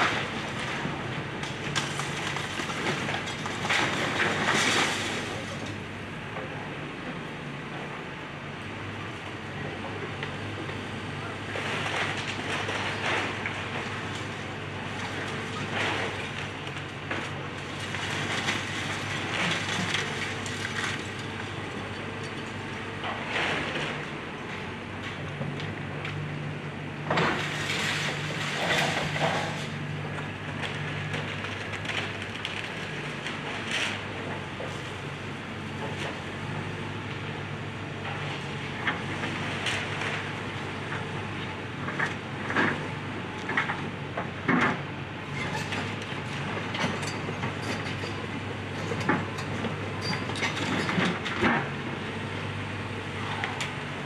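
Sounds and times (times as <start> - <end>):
demolition debris cracking and clanking: 0.0 - 5.8, 11.5 - 26.2, 27.0 - 34.9, 38.0 - 51.8
excavator diesel engine running: 0.0 - 54.0.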